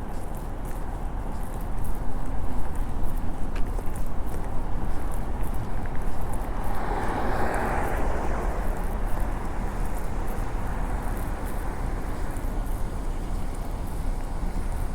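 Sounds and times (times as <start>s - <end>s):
low traffic rumble: 0.0s - 14.9s
vehicle passing: 5.4s - 14.7s.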